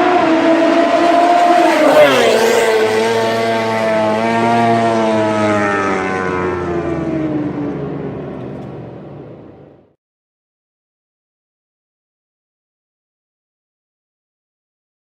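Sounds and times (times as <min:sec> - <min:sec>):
racing motorcycle passing at full throttle: 0:00.0 - 0:09.0.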